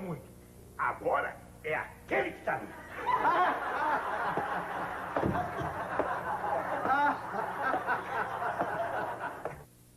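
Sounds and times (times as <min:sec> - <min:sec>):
audience laughter: 0:02.7 - 0:09.6.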